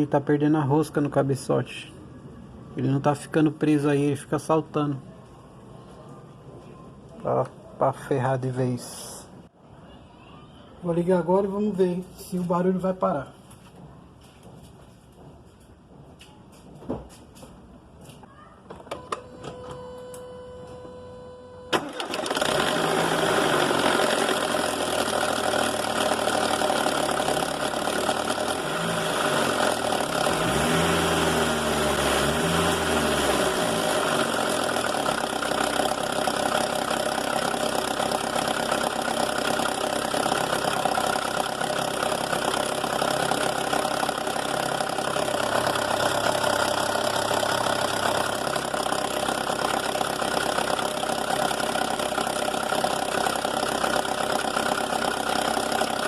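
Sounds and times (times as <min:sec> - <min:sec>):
car engine starting and revving: 0:21.8 - 0:56.0.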